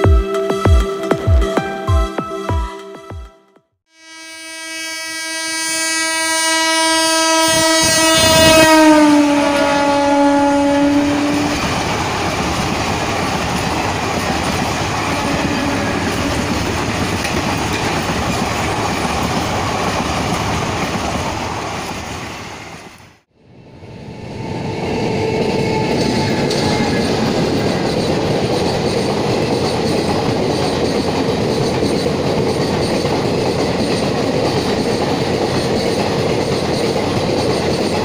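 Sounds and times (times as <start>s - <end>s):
locomotive horn: 3.9s - 11.7s, 15.0s - 16.7s
train coaches rumbling past: 7.2s - 38.0s.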